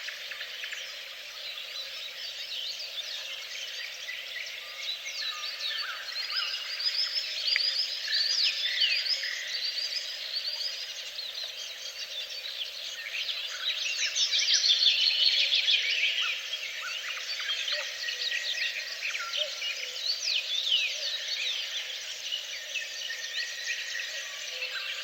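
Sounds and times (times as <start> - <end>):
songbirds chirping and trilling: 0.0 - 25.0.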